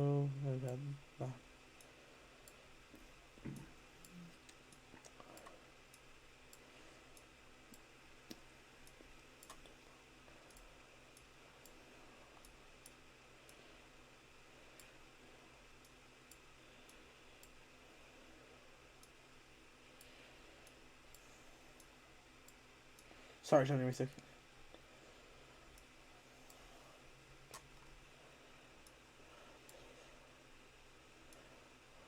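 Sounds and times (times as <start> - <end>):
computer mouse clicks: 7.2 - 9.8, 10.4 - 13.6.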